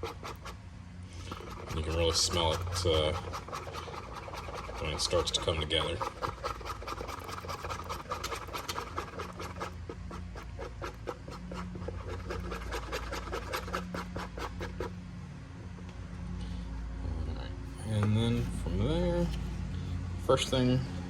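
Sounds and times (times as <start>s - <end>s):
plastic knife scraping a bowl: 0.0s - 15.0s.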